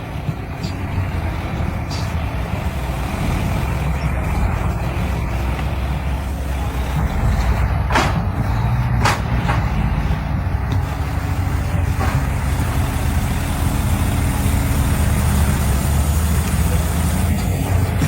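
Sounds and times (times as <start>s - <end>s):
diesel truck engines under load: 0.0s - 18.0s.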